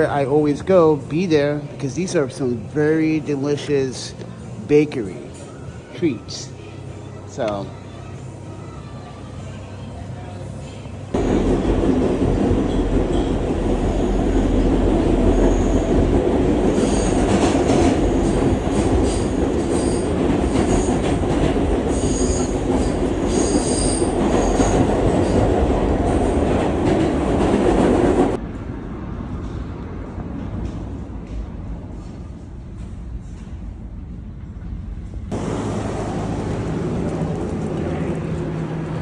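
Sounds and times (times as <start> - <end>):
train rumbling on rails: 6.5 - 39.0
high wheel squeals: 13.9 - 16.1, 16.7 - 17.6, 21.9 - 25.4.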